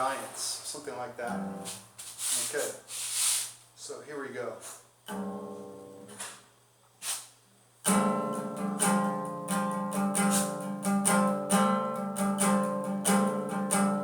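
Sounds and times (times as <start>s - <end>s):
acoustic guitar strumming: 0.0s - 2.1s, 5.1s - 6.4s, 7.8s - 14.0s
acoustic guitar chord ringing: 1.0s - 1.8s, 5.1s - 6.2s, 7.8s - 14.0s.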